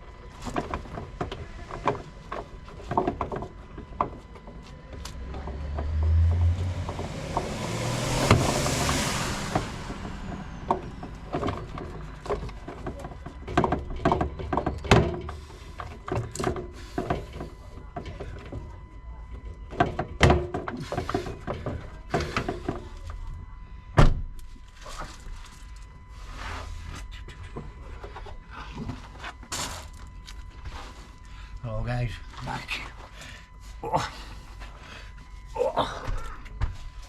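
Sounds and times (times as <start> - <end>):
rush of noise: 5.1 - 12.8.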